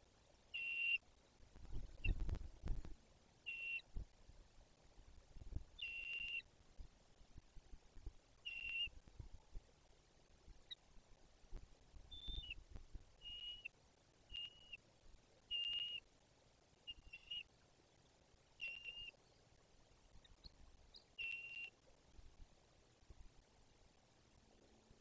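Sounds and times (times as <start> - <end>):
bird whistling call: 0.6 - 1.0, 3.5 - 3.8, 5.8 - 6.4, 8.5 - 8.9, 12.1 - 12.6, 13.2 - 13.7, 14.3 - 14.8, 15.5 - 16.0, 16.9 - 17.5, 18.6 - 19.2, 21.2 - 21.7.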